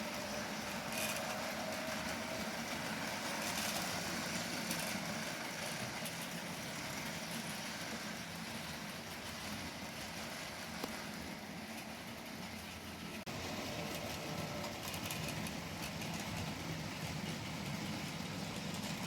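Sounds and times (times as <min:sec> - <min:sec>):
model train motors whirring: 0:00.0 - 0:19.0
wheels rolling on track: 0:00.0 - 0:19.0.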